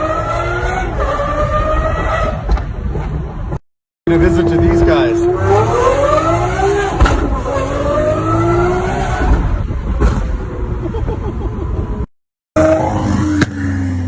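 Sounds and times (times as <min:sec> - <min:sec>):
sports car accelerating: 0:04.1 - 0:09.7.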